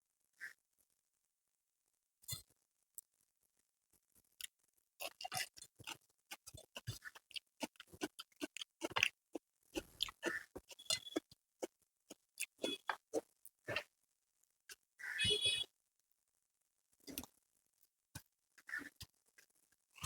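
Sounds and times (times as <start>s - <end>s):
wet chewing sounds: 5.0s - 11.2s, 12.1s - 13.8s.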